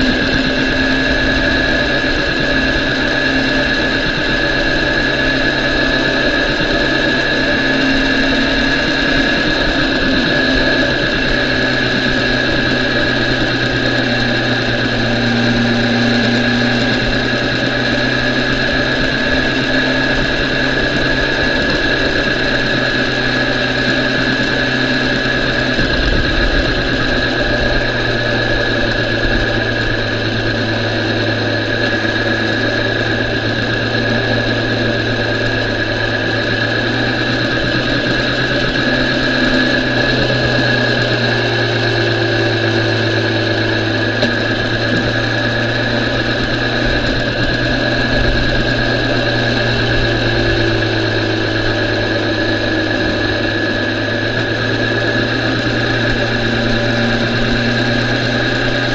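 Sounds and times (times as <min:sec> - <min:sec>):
high whine: 0:00.0 - 0:58.9
motorcycle engine running steadily: 0:00.0 - 0:58.9.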